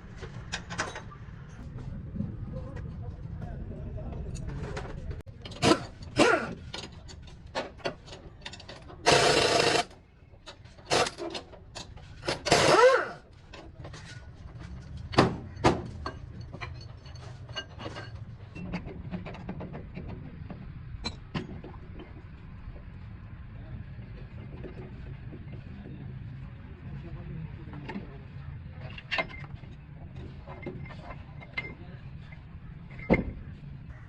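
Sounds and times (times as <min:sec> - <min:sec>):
hand tools clinking on metal: 0:15.8 - 0:18.9.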